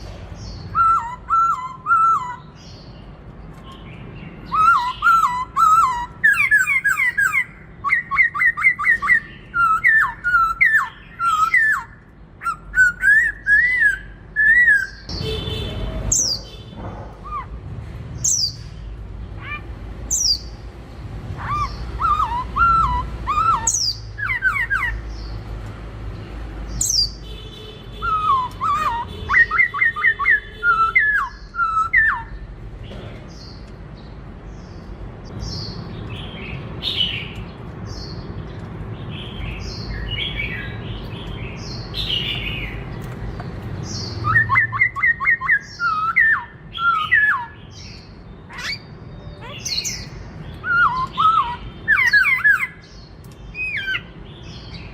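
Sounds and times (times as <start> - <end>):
bird whistling phrases: 0.7 - 2.6, 4.4 - 15.1, 17.2 - 17.6, 21.4 - 25.0, 27.9 - 32.4, 44.2 - 47.6, 48.5 - 52.8
high falling bird chirps: 21.4 - 25.4.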